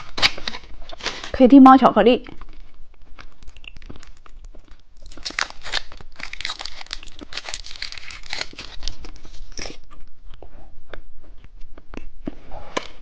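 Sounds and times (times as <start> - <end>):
plastic wrapper crinkling: 0.0 - 1.4, 2.2 - 9.9.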